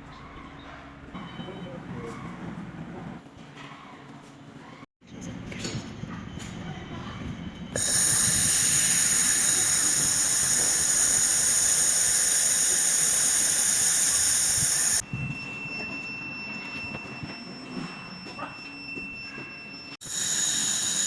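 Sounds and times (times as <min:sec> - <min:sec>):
laser gas jet hissing: 0:07.8 - 0:15.0, 0:20.0 - 0:21.0
steady high whine: 0:07.8 - 0:15.0, 0:19.7 - 0:21.0.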